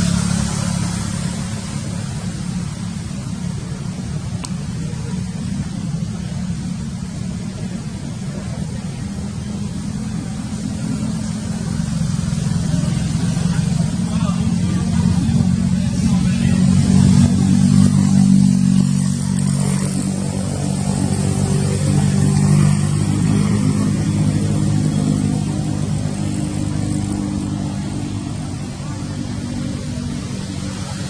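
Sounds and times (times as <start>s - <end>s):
engine humming: 0.0s - 31.0s.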